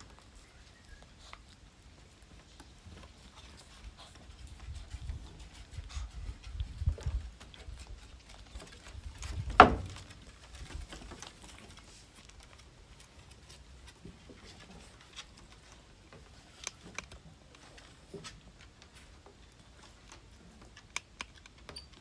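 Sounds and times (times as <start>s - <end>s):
dog claws clicking on floor: 7.5s - 22.0s.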